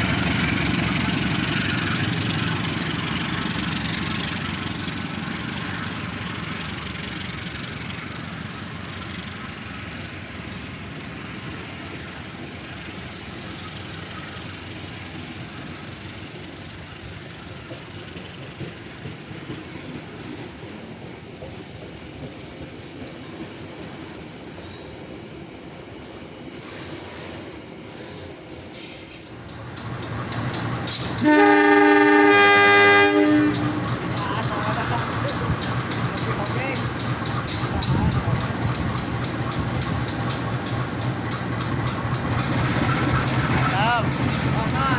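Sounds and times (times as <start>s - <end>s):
train rumble: 0.0s - 44.9s
train wheels clattering over rail joints: 17.5s - 25.1s, 26.6s - 44.9s
locomotive horn blast: 31.0s - 34.1s.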